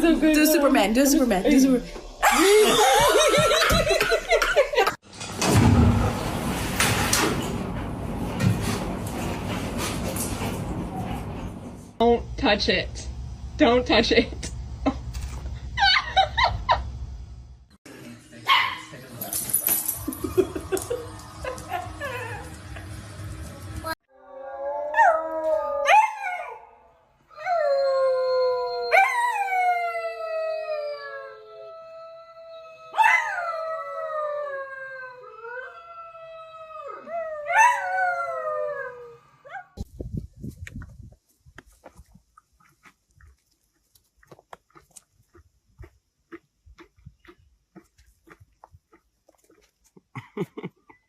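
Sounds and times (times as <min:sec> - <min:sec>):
dog barking and yipping: 0:18.5 - 0:18.9
dog howling: 0:20.8 - 0:22.9.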